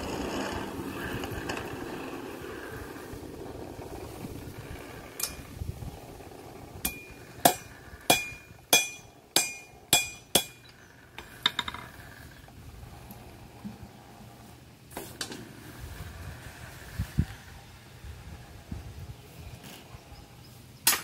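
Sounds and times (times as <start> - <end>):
hammer striking iron on anvil: 6.8 - 10.7.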